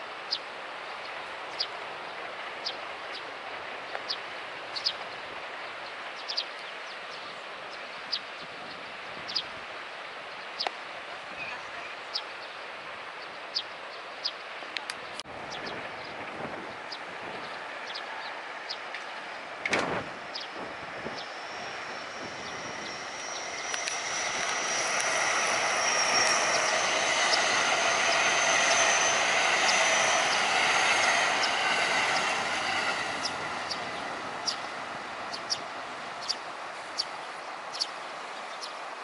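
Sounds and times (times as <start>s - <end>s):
train wheels rumbling on rail: 14.5s - 38.2s.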